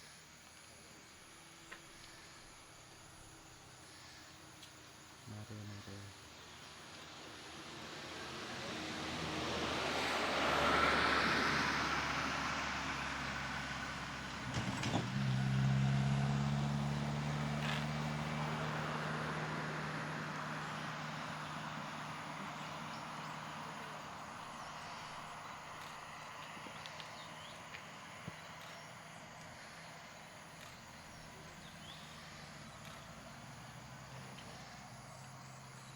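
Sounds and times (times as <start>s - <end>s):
vehicle passing on road: 5.6s - 35.9s
low engine hum: 7.2s - 35.9s.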